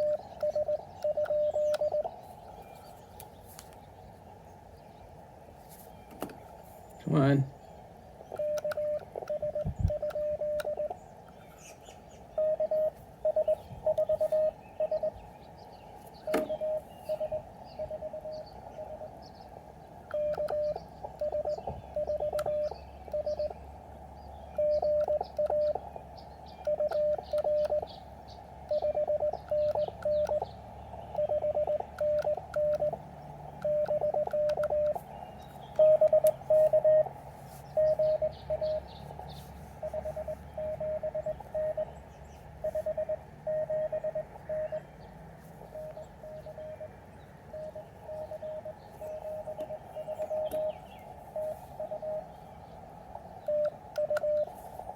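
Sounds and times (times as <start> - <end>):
morse code tone: 0.0 - 2.2, 8.3 - 11.0, 12.3 - 15.3, 16.2 - 19.4, 20.1 - 23.6, 24.5 - 25.9, 26.6 - 27.9, 28.6 - 45.0, 45.6 - 54.9
receiver hiss: 12.4 - 15.4, 26.6 - 41.9, 45.4 - 54.9.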